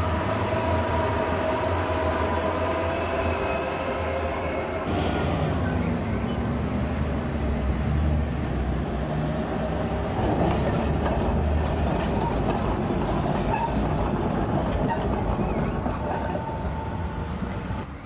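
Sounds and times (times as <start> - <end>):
tram rumbling: 0.0 - 18.0
rails clicking: 9.9 - 17.1.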